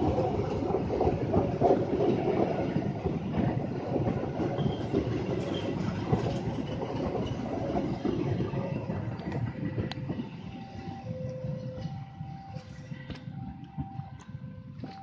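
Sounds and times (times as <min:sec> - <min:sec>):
wheels clattering over track: 0:00.0 - 0:10.3
train rumbling past: 0:00.0 - 0:15.0.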